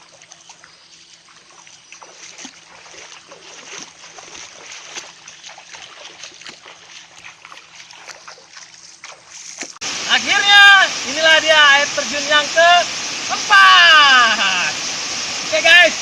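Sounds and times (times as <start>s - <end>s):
waterfall splashing over rocks: 9.8s - 16.0s.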